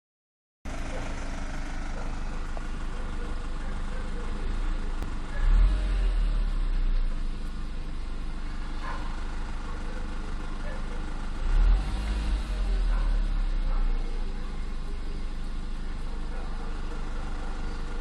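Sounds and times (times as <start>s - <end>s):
car engine idling: 0.7s - 18.0s
low engine rumble: 0.7s - 18.0s
noise from behind engine: 0.7s - 18.0s.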